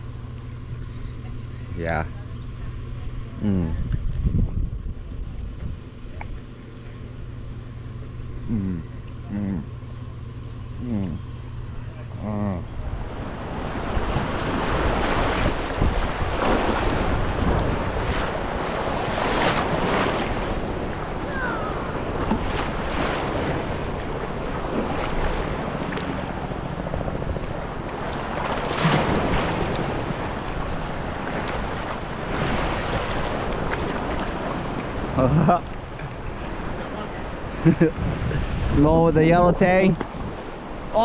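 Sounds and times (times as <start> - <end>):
wind buffeting the microphone: 2.8 - 6.3, 12.7 - 26.0, 35.8 - 40.9
ocean waves washing on shore: 11.9 - 41.0.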